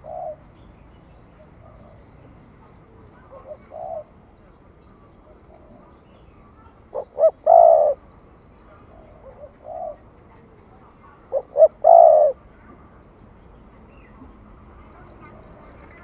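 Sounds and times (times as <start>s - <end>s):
dove cooing: 0.0s - 0.5s, 3.1s - 4.1s, 6.8s - 8.1s, 8.7s - 10.2s, 11.2s - 12.4s.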